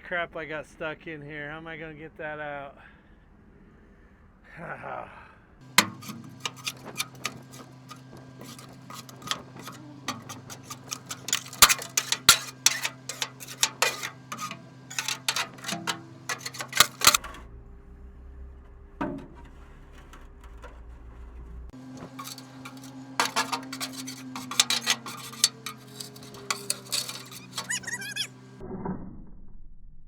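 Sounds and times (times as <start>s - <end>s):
debris clicking and scraping in steel gate: 5.7s - 17.4s, 21.8s - 28.5s.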